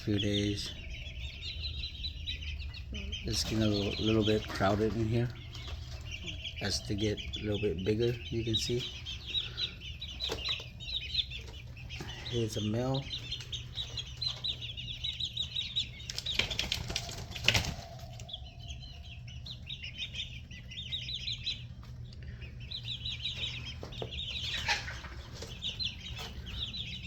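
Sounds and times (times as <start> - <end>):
chicks peeping: 0.0 - 27.0
wing flapping: 16.1 - 18.3.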